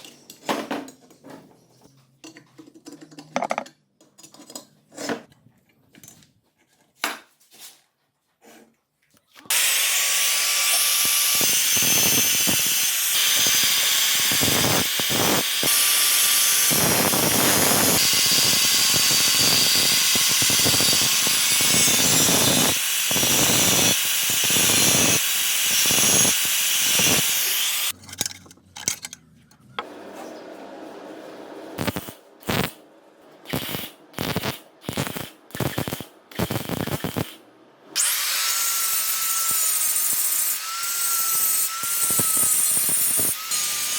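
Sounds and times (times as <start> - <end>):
power tool abrading metal: 9.5 - 28.0, 38.0 - 43.9
small metal parts clinking: 28.0 - 29.2.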